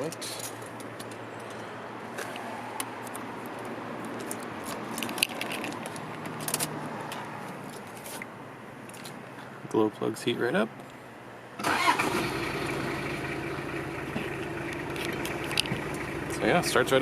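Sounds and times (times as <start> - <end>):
car keys jangling: 3.0 - 8.2, 14.7 - 16.0.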